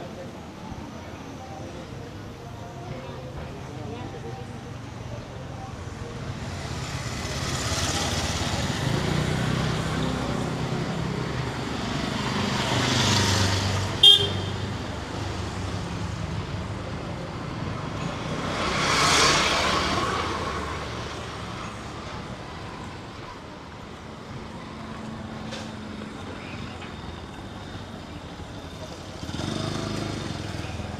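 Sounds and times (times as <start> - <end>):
vehicles passing: 0.1 - 30.9
short sharp car horn toot: 14.0 - 14.7.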